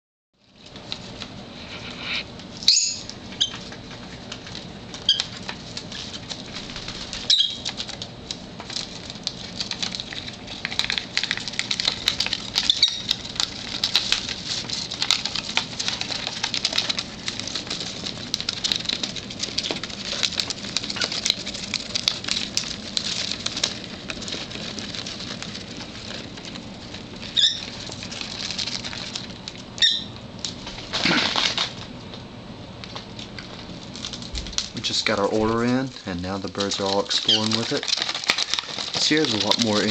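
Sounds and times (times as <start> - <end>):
small parrots chewing toys: 0.4 - 39.9
bird chirps: 2.6 - 3.5, 7.3 - 7.6.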